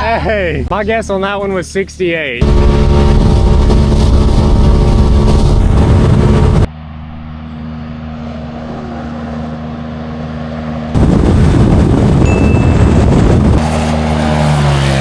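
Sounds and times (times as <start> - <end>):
loud noise: 2.4 - 7.3, 11.0 - 14.2
utility vehicle engine running: 2.4 - 15.0.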